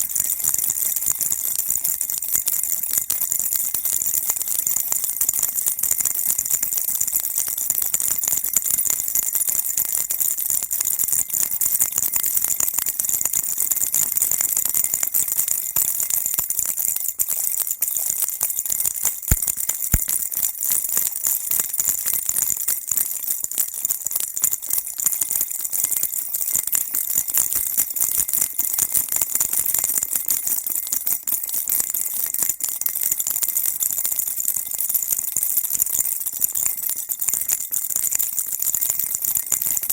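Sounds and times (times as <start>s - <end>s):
baby rattle jingling: 19.0s - 20.3s.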